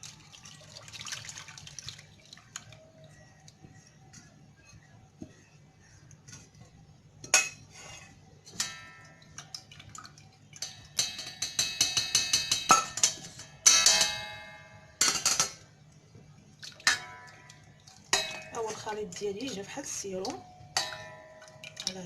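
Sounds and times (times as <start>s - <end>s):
metal utensils clinking on pot: 7.2s - 9.7s, 10.5s - 15.6s, 16.7s - 22.0s.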